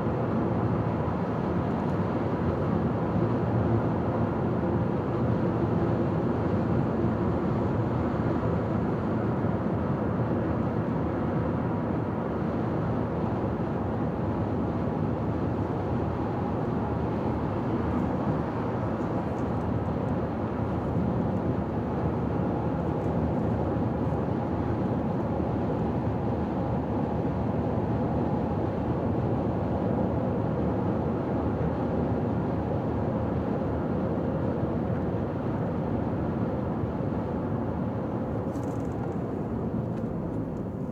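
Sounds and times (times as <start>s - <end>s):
car cruising on highway: 38.2s - 40.9s.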